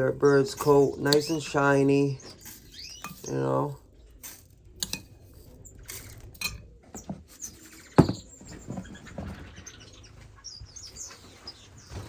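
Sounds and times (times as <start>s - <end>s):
finches squeaking and chirping: 0.0s - 3.8s, 7.0s - 12.0s.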